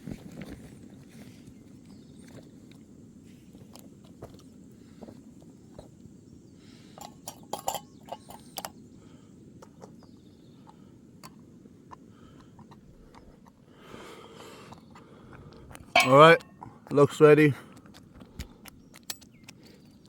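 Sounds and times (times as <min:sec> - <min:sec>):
metal utensil clinking on pan: 0:07.0 - 0:08.7, 0:16.0 - 0:16.5.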